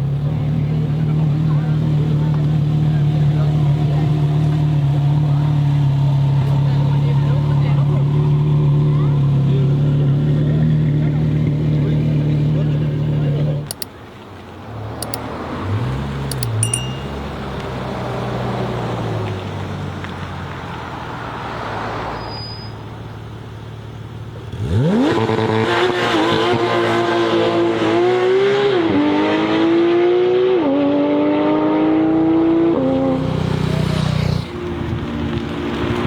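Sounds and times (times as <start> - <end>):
car engine revving: 24.4 - 36.0.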